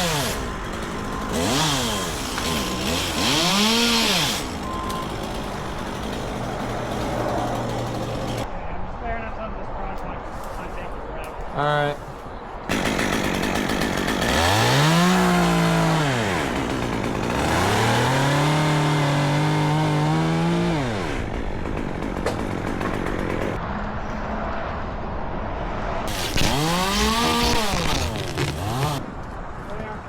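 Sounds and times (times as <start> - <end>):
chainsaw revving: 0.0 - 8.5, 12.7 - 23.6, 26.1 - 29.0.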